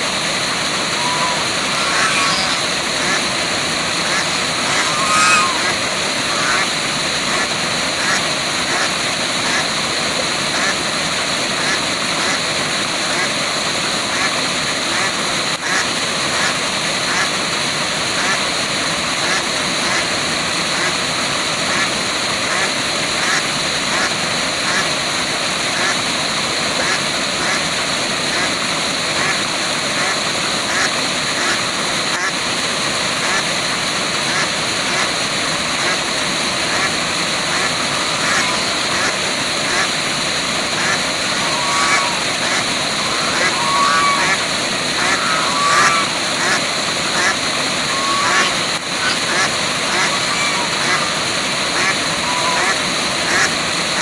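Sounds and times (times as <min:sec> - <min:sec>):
waterfall rushing: 0:00.0 - 0:18.1, 0:31.2 - 0:54.0
faint animal calls: 0:00.4 - 0:08.2, 0:36.6 - 0:54.0.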